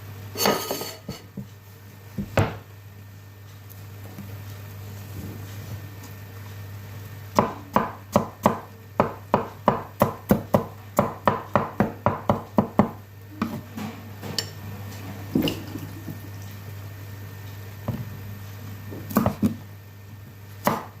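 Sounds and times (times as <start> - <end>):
knife chopping on cutting board: 7.4 - 13.6, 18.9 - 19.6, 20.6 - 21.0.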